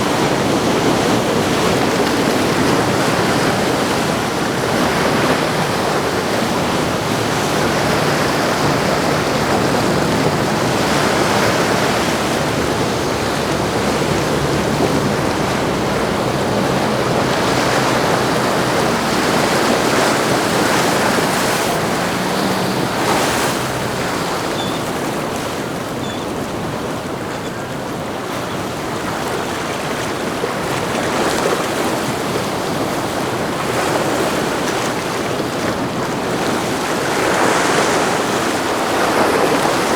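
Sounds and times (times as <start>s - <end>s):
splashing water: 0.0s - 39.9s
wind buffeting microphone: 0.0s - 39.9s
faint low engine hum: 3.5s - 28.6s.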